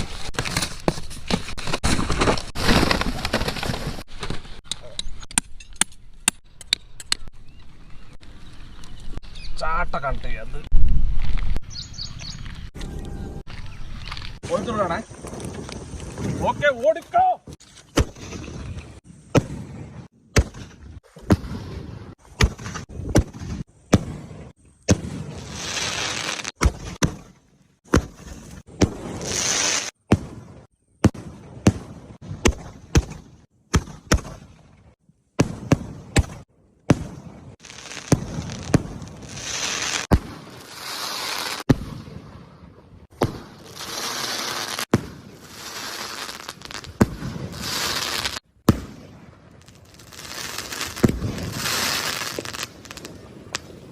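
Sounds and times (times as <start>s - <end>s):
firework hissing and fizzing: 25.2s - 26.6s, 37.6s - 41.7s, 43.6s - 48.4s, 49.6s - 53.1s.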